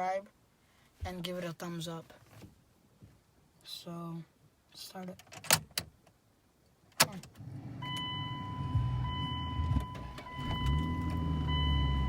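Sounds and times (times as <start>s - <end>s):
truck engine starting and running: 7.4s - 12.0s.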